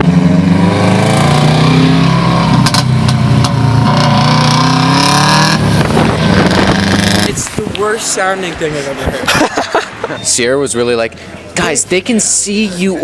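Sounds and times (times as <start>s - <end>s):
exhaust cracks: 2.2s - 8.0s.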